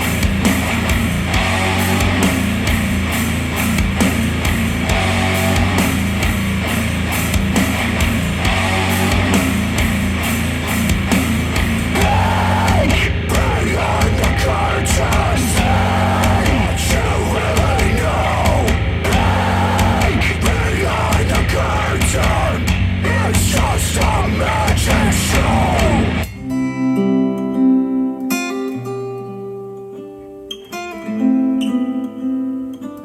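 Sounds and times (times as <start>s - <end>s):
rock music over speakers: 0.0s - 26.3s
plucked acoustic guitar: 26.2s - 33.0s.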